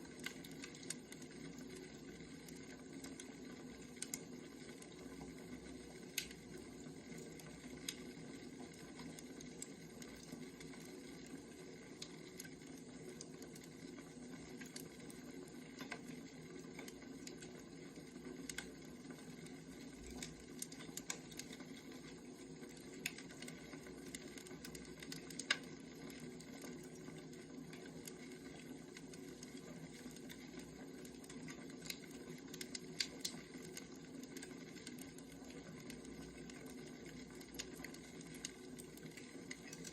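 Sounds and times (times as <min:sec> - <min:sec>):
firewood crackling and popping: 0:00.0 - 0:39.9
low hiss and hum: 0:00.0 - 0:39.9.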